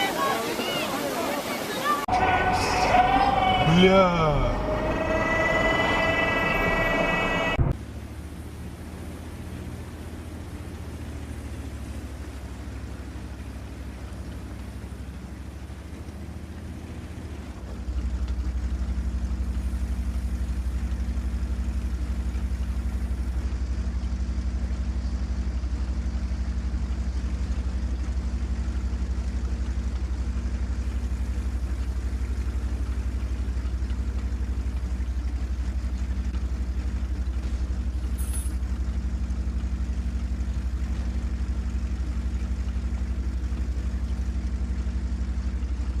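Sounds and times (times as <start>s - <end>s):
vehicle interior drone: 2.0s - 46.0s.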